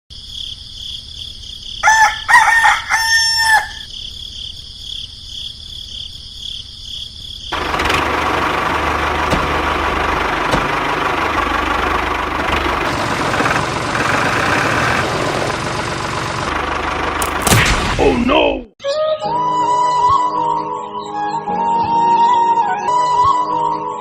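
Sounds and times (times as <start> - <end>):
rooster crowing: 1.8 - 3.9
loud engine running: 7.5 - 17.9.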